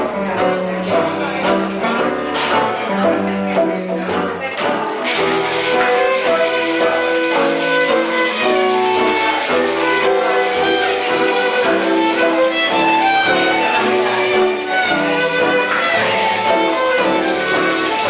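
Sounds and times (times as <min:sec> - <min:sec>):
live band music: 0:00.0 - 0:18.0
violin playing quick melody: 0:05.0 - 0:18.0.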